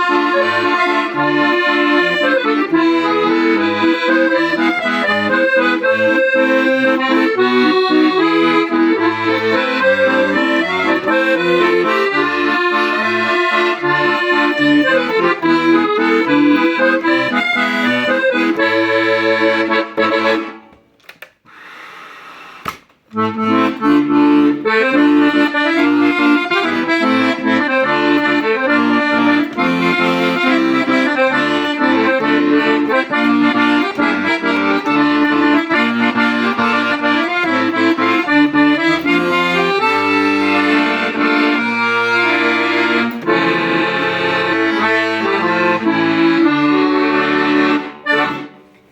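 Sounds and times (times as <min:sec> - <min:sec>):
accordion playing a tune: 0:00.0 - 0:20.8, 0:21.6 - 0:48.9.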